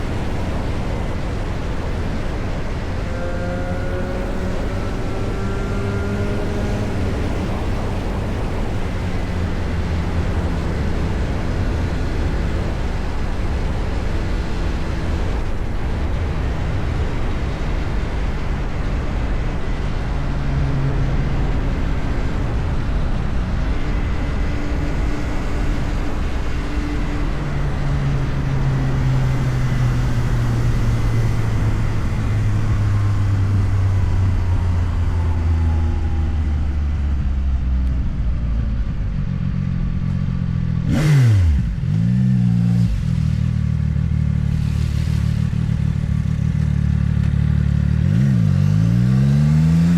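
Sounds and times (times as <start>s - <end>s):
wind rush: 0.0s - 39.2s
motorcycle engine running: 0.0s - 49.9s.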